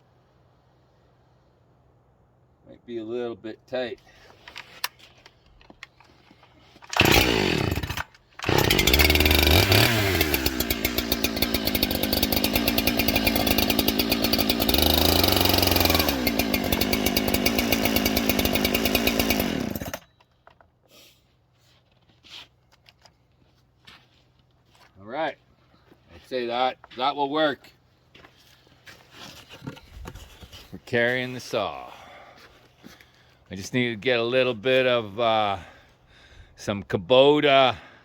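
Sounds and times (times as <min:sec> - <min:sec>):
chainsaw engine revving: 0:06.9 - 0:20.0.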